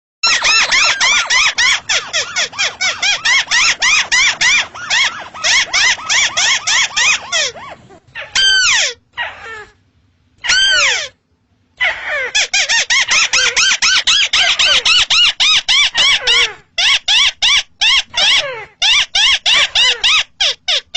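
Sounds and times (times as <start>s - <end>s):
bird calls sweeping downward: 0.2s - 8.9s
crake calling squeaky notes: 0.2s - 9.0s.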